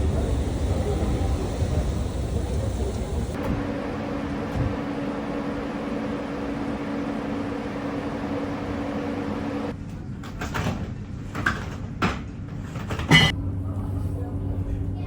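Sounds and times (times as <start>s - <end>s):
moving vehicle hum: 0.0s - 9.8s.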